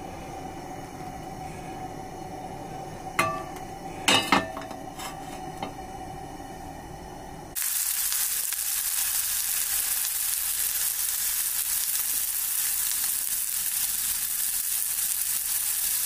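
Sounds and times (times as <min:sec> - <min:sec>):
food frying in hot oil: 0:07.6 - 0:16.0.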